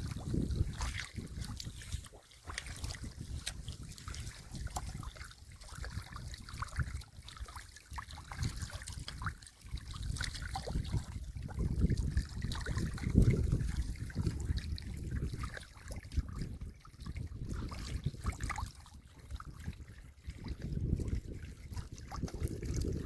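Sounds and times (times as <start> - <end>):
muddy water sloshing and splashing: 0.0 - 23.0.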